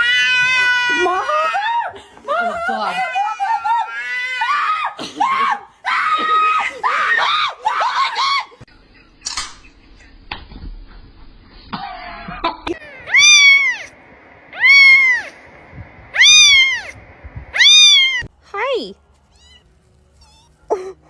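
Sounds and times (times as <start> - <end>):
cat meowing loudly: 0.0 - 1.6, 13.0 - 13.9, 14.5 - 15.3, 16.2 - 18.3.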